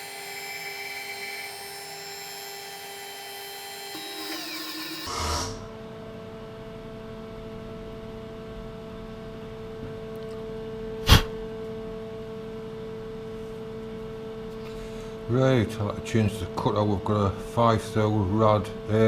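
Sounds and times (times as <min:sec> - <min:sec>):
machine-tool motor humming: 0:00.0 - 0:05.7.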